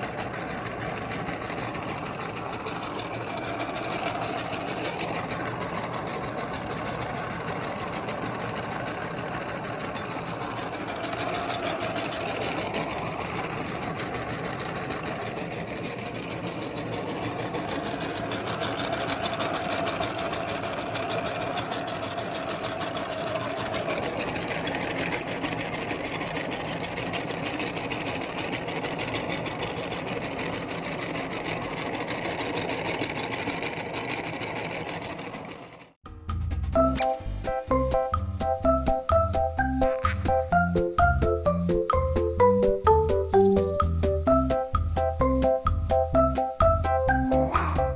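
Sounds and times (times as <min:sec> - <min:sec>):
electric meat grinder running: 0:00.0 - 0:36.0.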